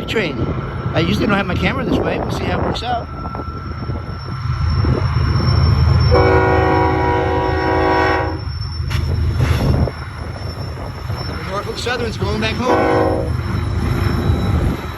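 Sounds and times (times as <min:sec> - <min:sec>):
diesel locomotives rumbling past: 0:00.0 - 0:14.9
multi-note train horn blast: 0:06.1 - 0:08.4, 0:12.7 - 0:13.3.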